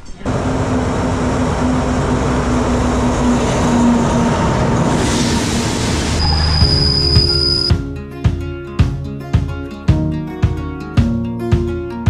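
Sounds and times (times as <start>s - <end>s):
locomotive engine drone: 0.0s - 7.7s
train wheels rumbling on rails: 0.0s - 7.7s.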